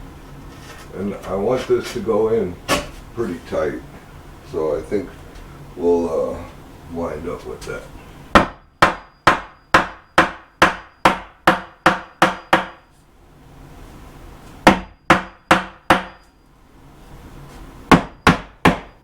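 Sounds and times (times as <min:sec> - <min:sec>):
hammer striking wooden stud: 0:08.4 - 0:12.8, 0:14.6 - 0:16.2, 0:17.9 - 0:19.0.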